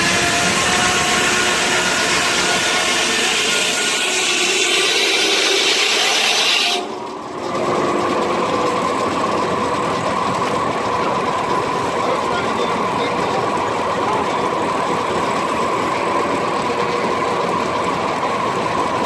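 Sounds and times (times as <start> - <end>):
saw blade cutting log ringing: 0.0 - 7.0
sawmill running low: 0.0 - 19.0.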